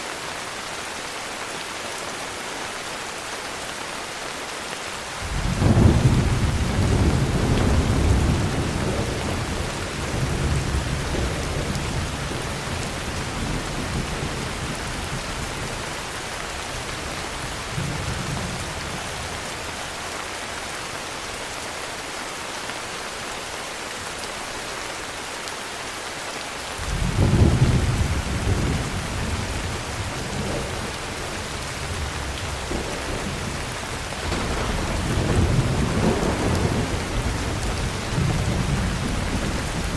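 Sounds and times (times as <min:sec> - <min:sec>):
heavy rain: 0:00.0 - 0:39.9
rolling thunder: 0:05.2 - 0:15.9, 0:26.8 - 0:39.9.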